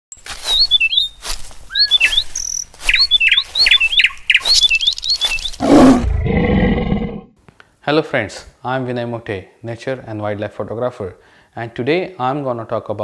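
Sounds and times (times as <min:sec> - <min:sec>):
songbird whistling: 0:00.4 - 0:05.6
loud low roar: 0:05.6 - 0:07.3.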